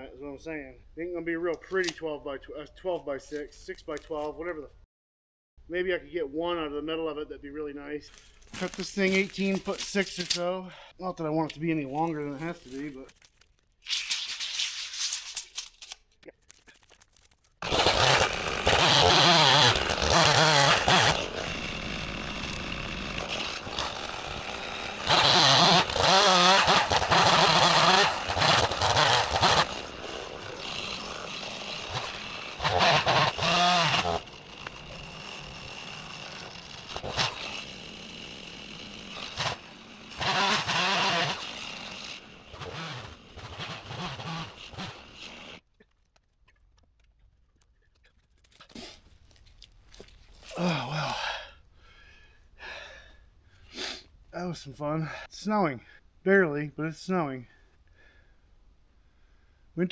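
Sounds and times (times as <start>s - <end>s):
chainsaw cutting wood: 8.2s - 10.5s, 17.6s - 45.6s.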